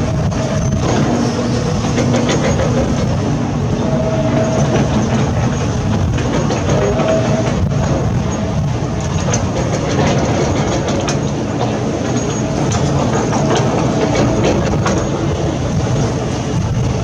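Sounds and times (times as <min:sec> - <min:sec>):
high metallic squeals: 0:00.0 - 0:08.7
diesel engine rumble: 0:00.0 - 0:17.0
machinery clanking: 0:00.0 - 0:17.0.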